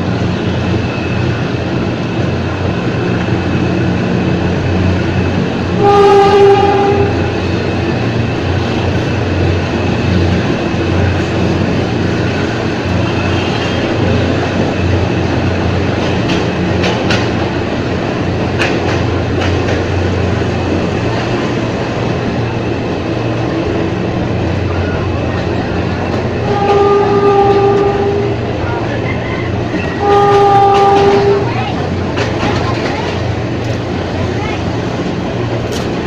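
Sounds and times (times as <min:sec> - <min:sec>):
train rumble and hum: 0:00.0 - 0:36.0
train horn: 0:05.8 - 0:07.5, 0:26.4 - 0:28.5, 0:29.8 - 0:31.8
wheels clicking over rail joints: 0:10.2 - 0:21.5, 0:29.0 - 0:36.0.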